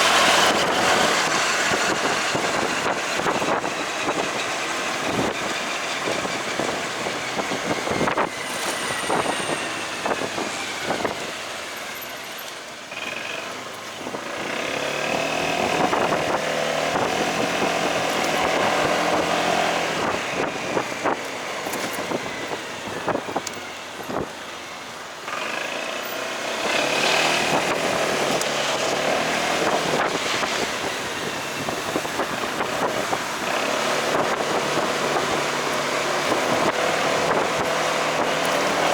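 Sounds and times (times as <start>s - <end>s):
motorcycle engine: 0.0s - 38.9s
road and wind noise: 0.0s - 38.9s.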